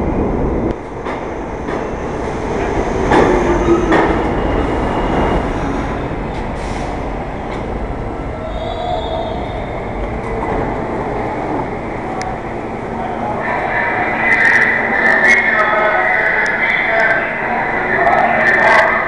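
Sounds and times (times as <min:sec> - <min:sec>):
subway train wheels rumbling: 0:00.0 - 0:19.0.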